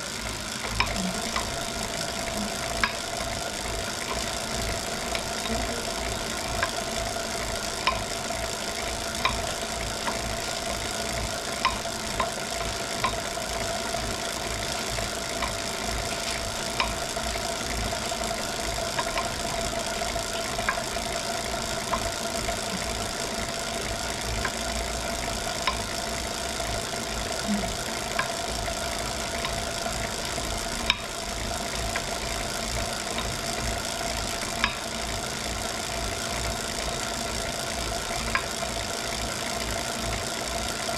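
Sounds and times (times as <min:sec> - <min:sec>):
bike trainer whine: 0:00.0 - 0:40.9.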